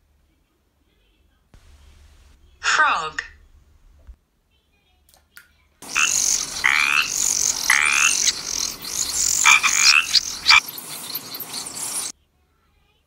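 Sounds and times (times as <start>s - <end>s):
steady high hiss: 1.6s - 4.2s, 5.8s - 12.1s
frog croaking: 5.8s - 12.1s.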